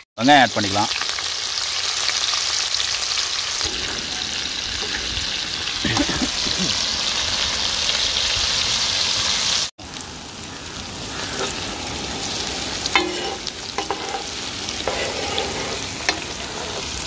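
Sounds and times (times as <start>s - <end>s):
shallots sizzling in hot oil: 0.2s - 17.0s
metal spatula scraping pan: 11.3s - 11.6s, 12.3s - 17.0s.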